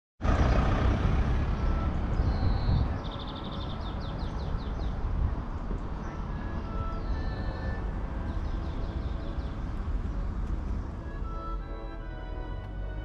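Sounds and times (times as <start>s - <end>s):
low street rumble: 0.2s - 13.0s
small bird singing: 1.2s - 11.5s.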